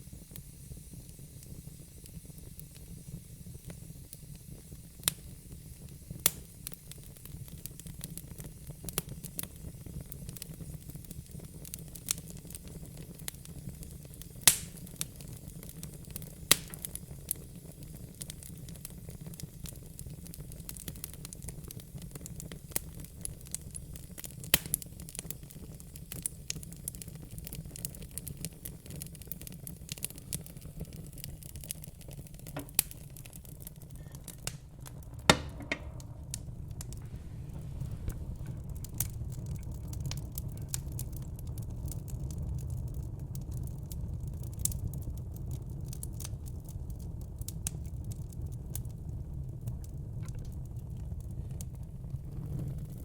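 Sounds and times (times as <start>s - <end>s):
wood fire crackling: 0.0s - 53.0s
steady low rumble: 32.7s - 43.4s.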